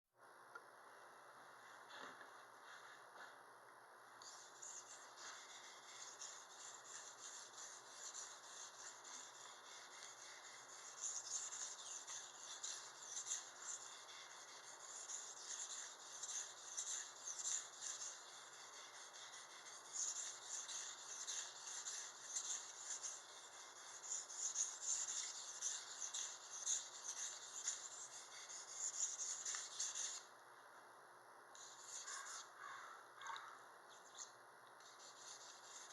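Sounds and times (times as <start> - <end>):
knife scraping on sharpener: 4.2 - 30.3, 31.6 - 32.5.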